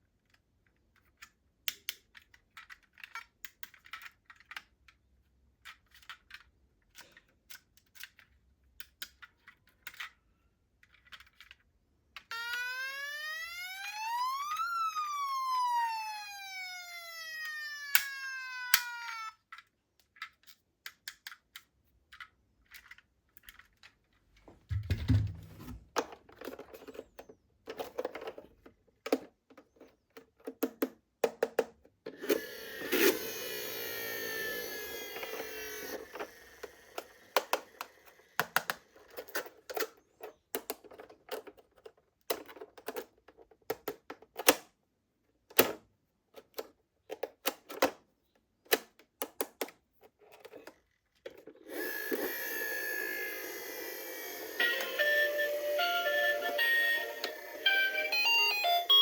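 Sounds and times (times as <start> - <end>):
plastic toy clicks and taps: 5.7 - 10.2, 18.0 - 23.6, 29.0 - 31.9, 35.2 - 39.9, 48.7 - 49.8
toy whirring: 12.3 - 19.7, 32.1 - 39.6, 50.6 - 59.0.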